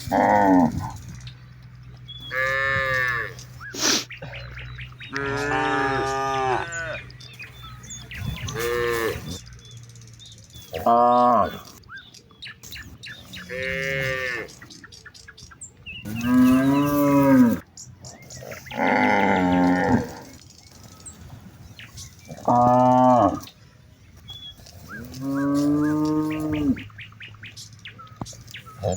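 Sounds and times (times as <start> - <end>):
cattle mooing: 0.0 - 1.1, 2.2 - 3.5, 4.2 - 9.4, 10.7 - 11.8, 13.3 - 14.6, 16.0 - 17.6, 18.5 - 20.4, 22.3 - 23.5, 24.7 - 27.0, 28.7 - 28.9.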